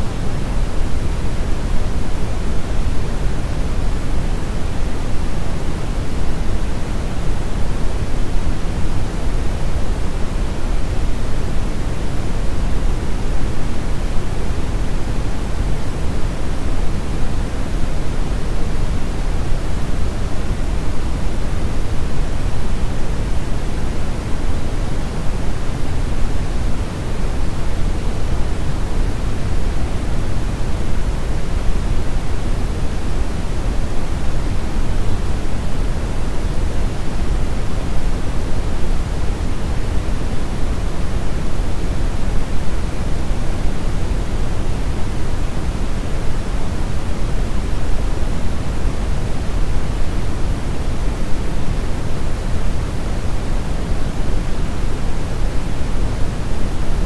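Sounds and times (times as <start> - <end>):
steady brown noise: 0.0 - 57.0.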